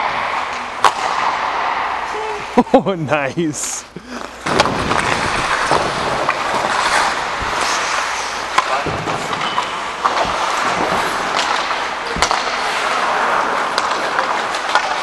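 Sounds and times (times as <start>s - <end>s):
hockey sticks clicking: 0.0s - 2.2s, 4.1s - 15.0s
skates scraping: 3.4s - 15.0s.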